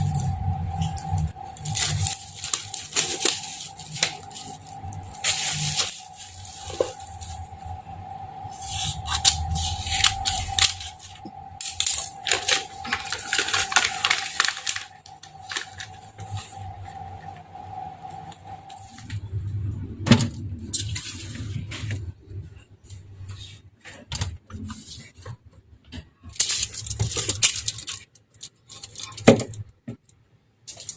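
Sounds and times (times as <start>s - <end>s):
items clinking and knocking: 0.0s - 7.5s, 8.7s - 16.7s
packaging rustling and crinkling: 0.0s - 7.8s, 8.5s - 16.8s, 26.3s - 29.6s.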